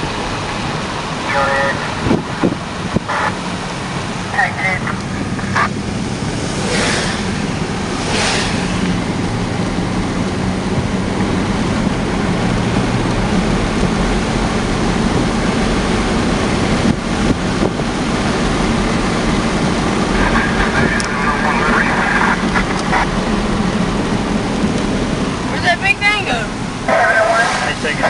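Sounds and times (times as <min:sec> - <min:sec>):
low engine hum: 0:00.0 - 0:28.0
road and wind noise: 0:00.0 - 0:28.0.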